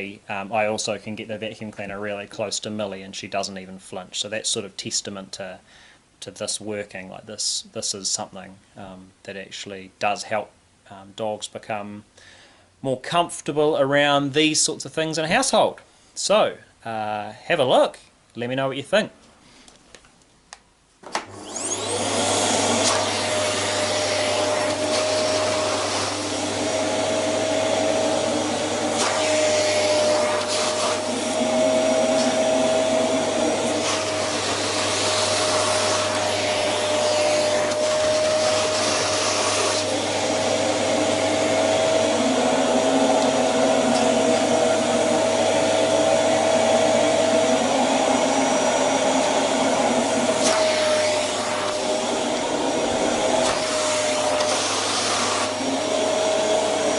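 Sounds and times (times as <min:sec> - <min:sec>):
vacuum cleaner motor whining: 0:21.1 - 0:56.9.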